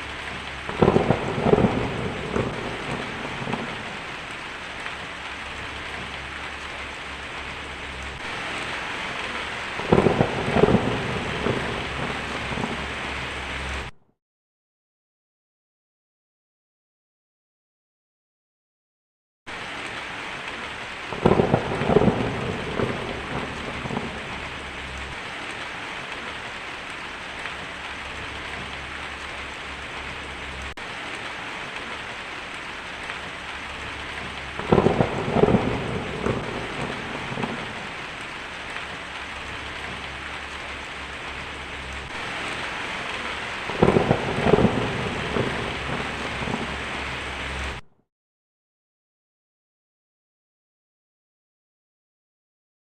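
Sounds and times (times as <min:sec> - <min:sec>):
rolling thunder: 0:00.0 - 0:13.9, 0:21.1 - 0:26.5, 0:32.8 - 0:47.8
heavy rain on a tin roof: 0:00.0 - 0:14.0, 0:19.5 - 0:47.8.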